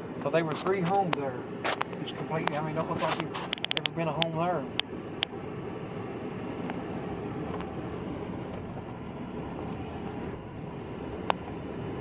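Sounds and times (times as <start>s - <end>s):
car engine and tyres on road: 0.0s - 12.0s.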